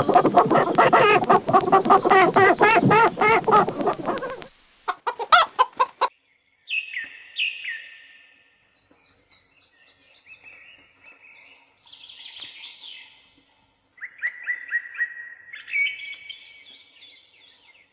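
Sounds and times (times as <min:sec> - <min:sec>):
chicks peeping: 0:00.0 - 0:06.1
hen clucking: 0:00.0 - 0:06.1.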